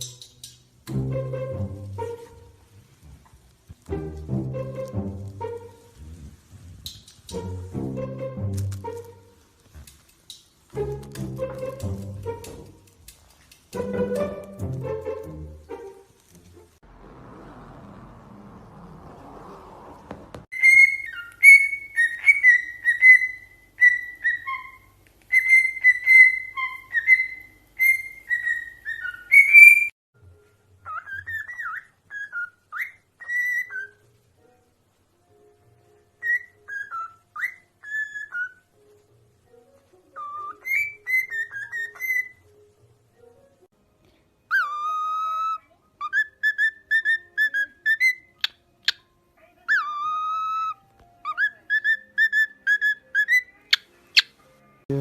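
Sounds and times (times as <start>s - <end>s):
parrot chirps and squeaks: 0.0s - 0.8s, 5.8s - 7.7s, 20.5s - 29.9s, 30.8s - 34.1s, 36.2s - 38.7s, 40.1s - 42.5s, 44.5s - 54.4s
parrot whistling: 20.5s - 29.9s, 30.8s - 34.0s, 36.2s - 38.6s, 40.2s - 42.4s, 44.5s - 49.0s, 49.7s - 54.3s.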